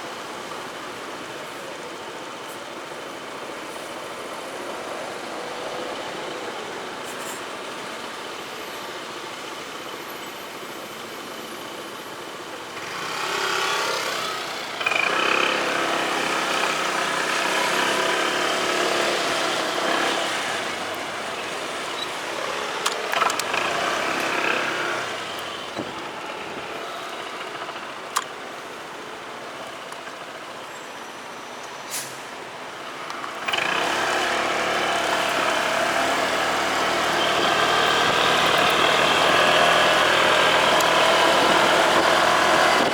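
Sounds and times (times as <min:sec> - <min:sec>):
motorcycle engine running: 0:12.8 - 0:28.6, 0:33.5 - 0:42.9.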